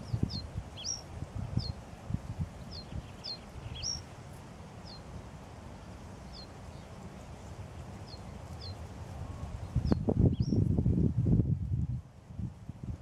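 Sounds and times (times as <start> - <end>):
small bird chirping: 0.0 - 1.8, 2.6 - 4.1, 4.8 - 5.1, 6.3 - 6.9, 8.0 - 8.9, 9.6 - 10.6.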